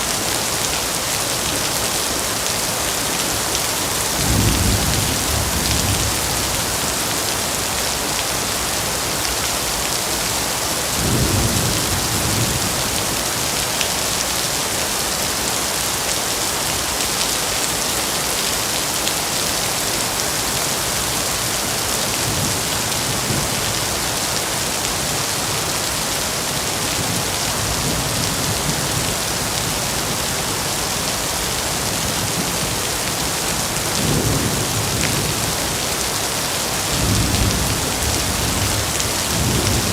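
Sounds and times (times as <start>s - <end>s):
heavy rain: 0.0s - 39.9s
thunder rumbling: 4.2s - 6.8s.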